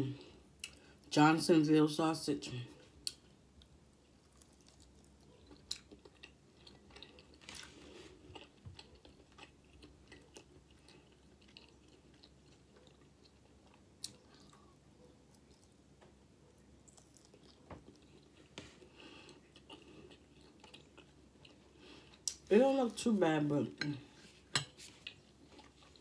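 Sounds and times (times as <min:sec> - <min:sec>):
chewing with wet mouth clicks: 0:03.0 - 0:07.7, 0:08.3 - 0:15.8, 0:19.2 - 0:22.4.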